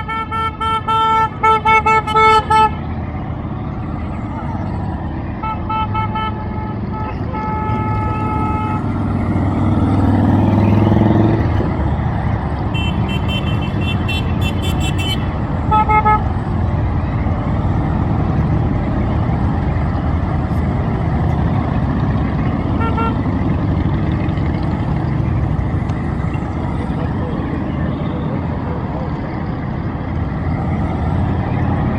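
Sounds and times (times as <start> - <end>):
horns tooting: 0.0 - 3.3, 4.2 - 11.8, 12.4 - 17.7, 21.1 - 29.3
motorcycle engines rumbling: 0.0 - 31.9
motorcycle passing: 7.6 - 29.1.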